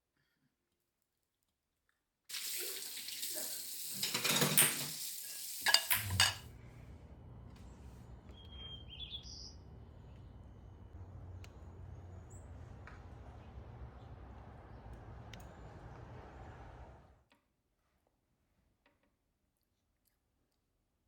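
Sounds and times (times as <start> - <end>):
tap running into sink: 2.3 - 6.4
dishes and cutlery clinking: 4.0 - 5.0, 5.6 - 6.4
faint low hum: 6.0 - 17.2.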